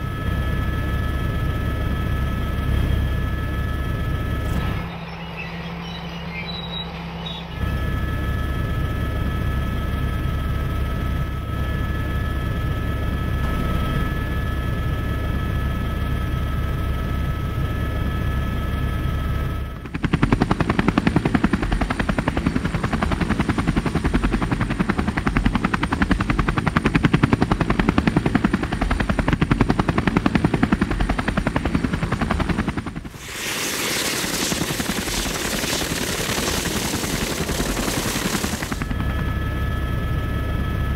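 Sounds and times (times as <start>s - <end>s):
helicopter engine rumble and whine: 0.0s - 40.9s
helicopter rotor blades chopping: 0.1s - 40.9s
steady hissing noise: 33.1s - 38.8s.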